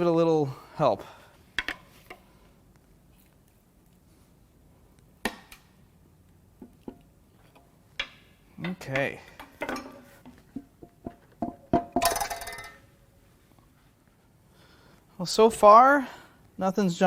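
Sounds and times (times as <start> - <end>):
hand tools knocking on metal: 10.5 - 12.8.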